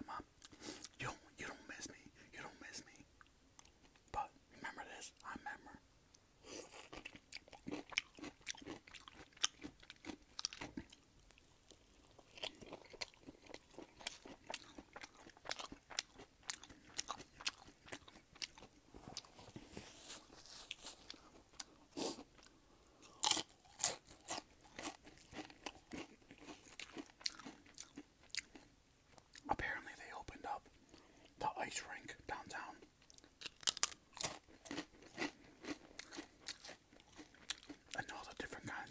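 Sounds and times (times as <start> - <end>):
person chewing crunchy food: 6.4 - 29.5, 33.0 - 38.9.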